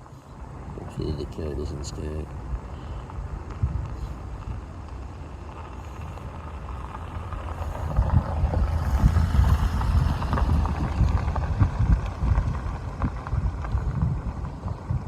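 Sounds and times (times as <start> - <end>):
car driving past: 5.6 - 13.8.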